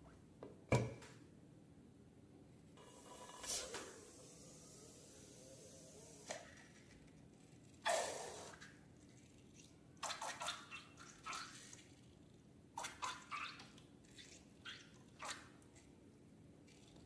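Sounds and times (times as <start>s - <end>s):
slime squelching: 6.1s - 15.9s.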